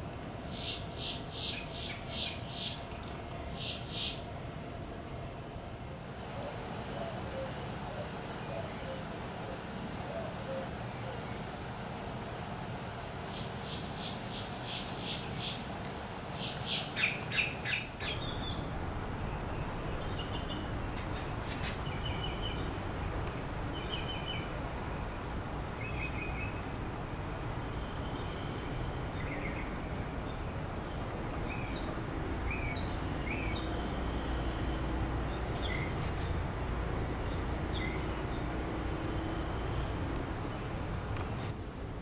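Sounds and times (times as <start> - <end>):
steady low background noise: 0.0 - 42.0
birds calling harshly: 0.5 - 2.9, 3.5 - 4.2, 13.3 - 15.7, 16.4 - 41.5.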